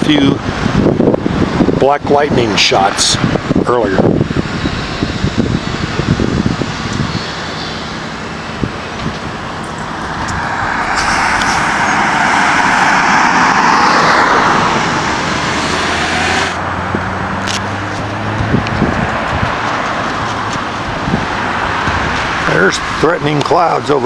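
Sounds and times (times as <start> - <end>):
low engine hum: 3.2 - 24.0
vehicle passing by: 5.3 - 23.3.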